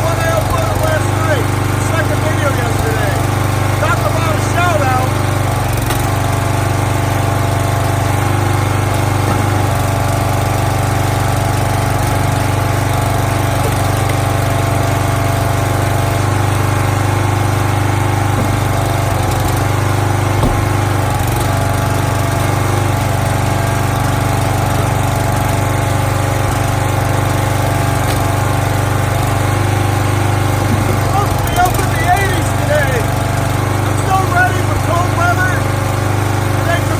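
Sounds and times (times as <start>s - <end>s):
log splitter engine running: 0.0s - 36.9s
brief knock: 20.4s - 20.9s.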